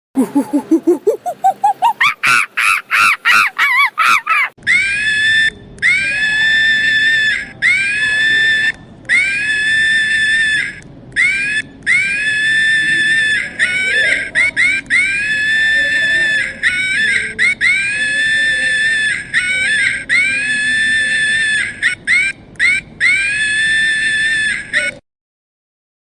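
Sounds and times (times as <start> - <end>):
monkey hooting: 0.2 - 25.0
monkey screaming: 0.2 - 25.0.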